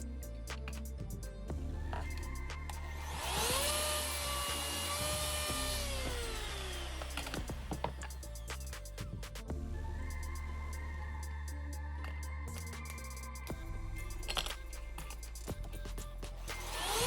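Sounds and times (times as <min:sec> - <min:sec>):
background music: 0:00.0 - 0:17.0
electric router motor whining: 0:03.1 - 0:07.5.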